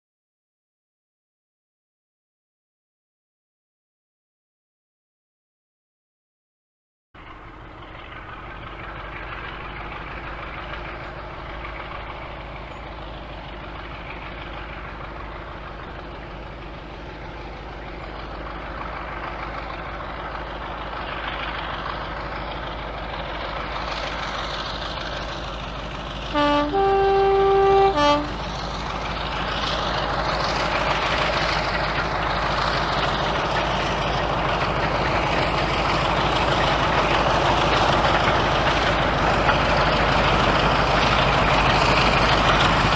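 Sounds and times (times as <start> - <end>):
diesel locomotive engine running: 7.2 - 42.9
locomotive horn: 26.3 - 28.6.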